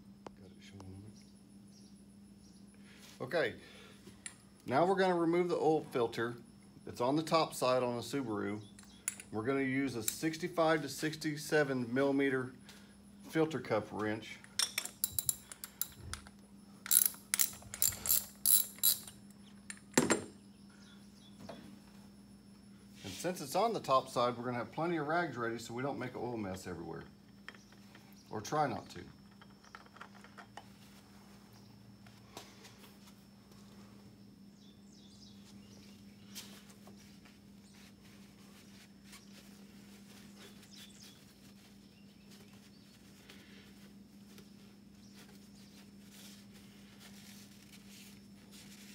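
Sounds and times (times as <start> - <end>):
steady low hum: 0.0 - 48.9
ratchet clicking: 16.9 - 19.2.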